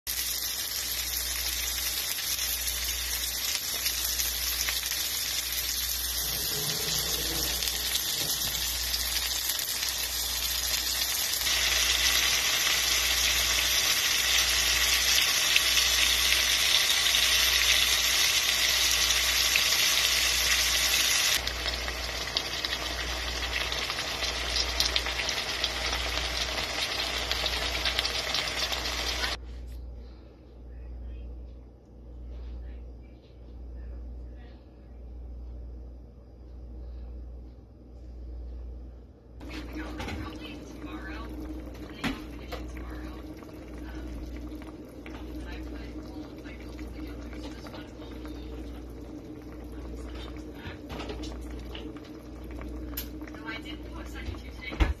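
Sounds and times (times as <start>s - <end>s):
meat and vegetables sizzling in pan: 0.1s - 29.4s, 39.4s - 53.6s.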